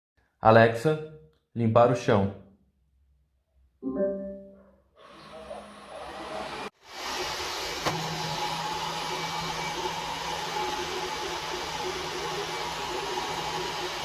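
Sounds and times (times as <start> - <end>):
robot vacuum suction whirr: 5.0 - 14.0.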